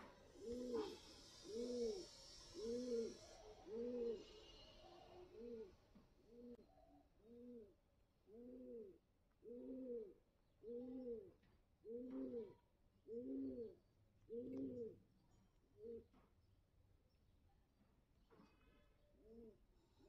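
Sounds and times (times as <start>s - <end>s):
bird cooing: 0.0s - 5.7s, 6.3s - 15.0s, 15.8s - 16.1s, 19.2s - 19.6s.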